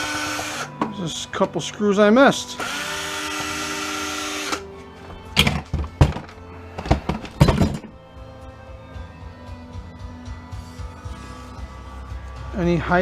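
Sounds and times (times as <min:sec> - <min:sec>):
cordless drill running: 0:00.0 - 0:00.7, 0:02.6 - 0:04.6.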